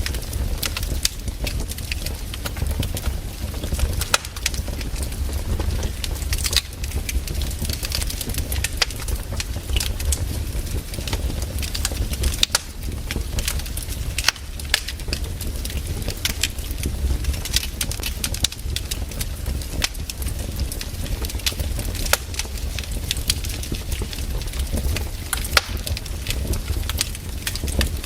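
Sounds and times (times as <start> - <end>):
firewood crackling and popping: 0.0 - 28.0
low rumble: 2.1 - 12.2.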